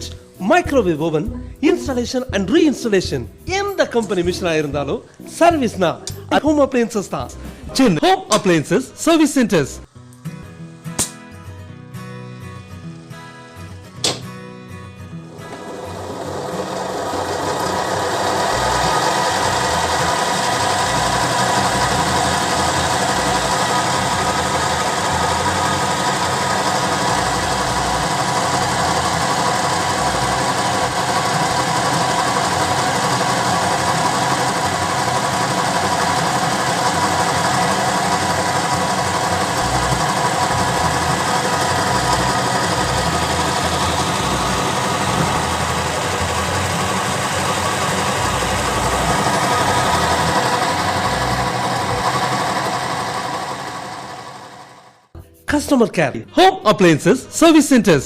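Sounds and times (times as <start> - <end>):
motor-driven machine humming: 12.2 - 14.2, 15.2 - 55.0.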